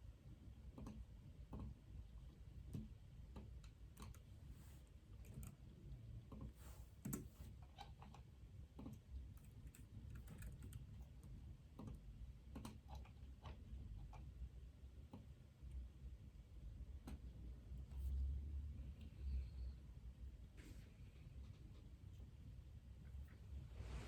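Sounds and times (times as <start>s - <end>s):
low room hum: 0.0s - 24.0s
typing on computer keyboard: 3.6s - 4.3s, 8.8s - 11.2s.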